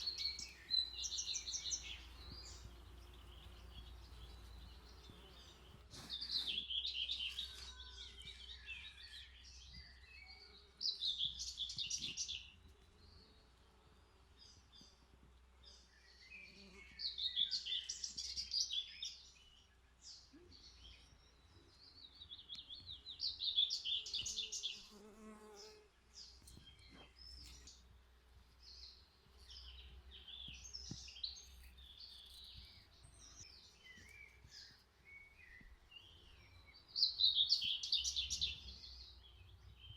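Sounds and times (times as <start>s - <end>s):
bee buzzing: 0.0s - 5.9s.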